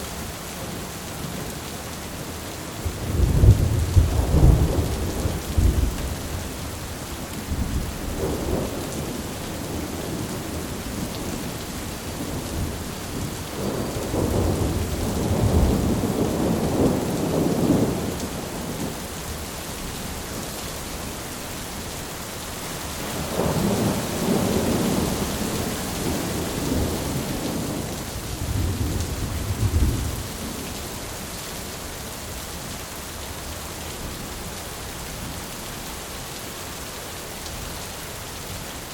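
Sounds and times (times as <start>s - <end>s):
steady rain: 0.0s - 38.9s
rolling thunder: 3.0s - 6.4s, 12.2s - 18.9s, 23.2s - 30.5s.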